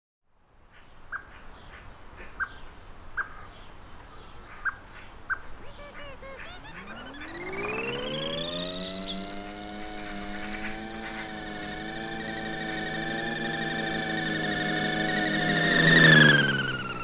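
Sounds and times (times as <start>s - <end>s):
faint birdsong: 0.6s - 17.0s
sharp bird chirps: 4.7s - 12.5s
quick looping bird notes: 5.3s - 17.0s.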